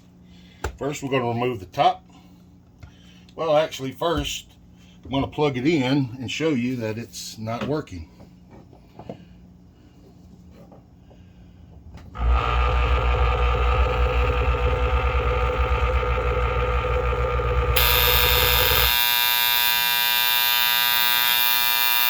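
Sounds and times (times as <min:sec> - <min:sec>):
pump mains hum: 0:11.0 - 0:22.0
high buzzing alarm tone: 0:13.6 - 0:22.0.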